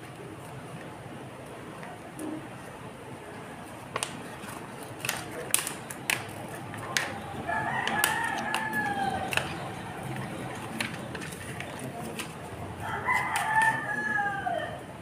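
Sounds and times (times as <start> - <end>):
vinyl sheet crackling and peeling: 3.8 - 13.7
rooster crowing: 7.4 - 9.6, 12.8 - 15.0.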